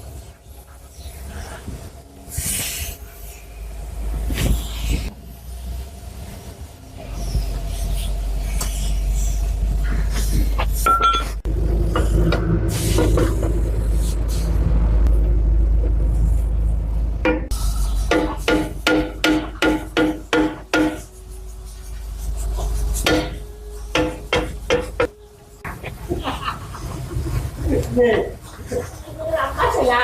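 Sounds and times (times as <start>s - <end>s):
loud low rumble: 11.4s - 17.8s.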